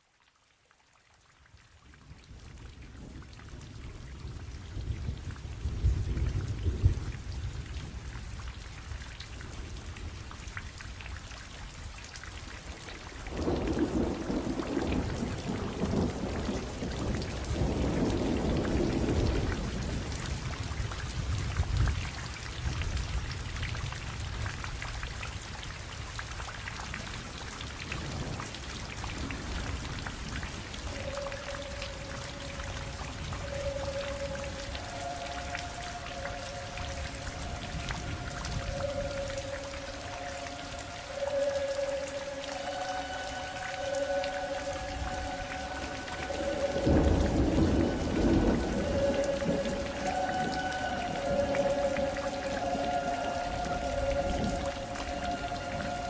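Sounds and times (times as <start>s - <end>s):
steady rain: 0.0s - 56.0s
rolling thunder: 42.7s - 56.0s.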